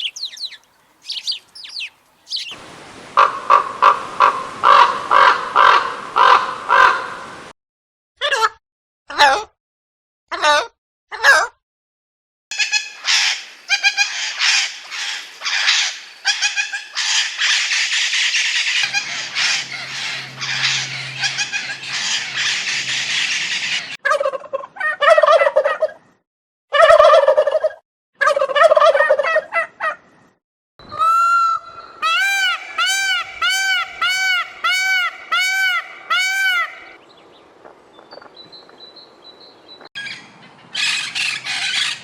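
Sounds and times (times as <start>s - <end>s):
geese honking: 18.8s - 24.0s, 30.9s - 37.0s
turkeys gobbling: 18.8s - 24.0s, 30.9s - 37.0s, 40.7s - 42.0s.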